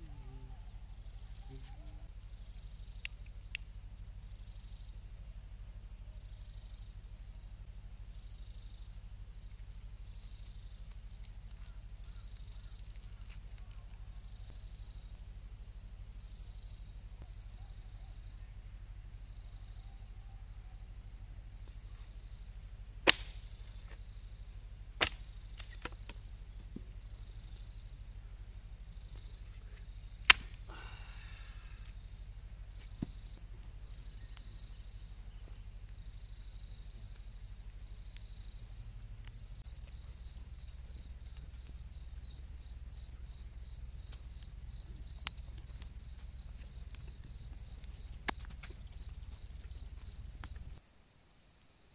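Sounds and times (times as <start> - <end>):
cricket chorus chirring: 0.0 - 51.9
campfire wood cracking: 9.5 - 14.6, 22.9 - 24.1, 24.9 - 27.1, 28.9 - 50.8.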